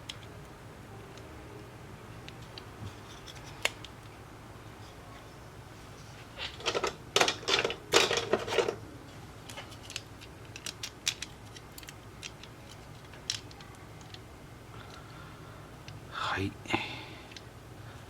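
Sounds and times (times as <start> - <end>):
small clicks and scrapes of tools: 2.5 - 3.9.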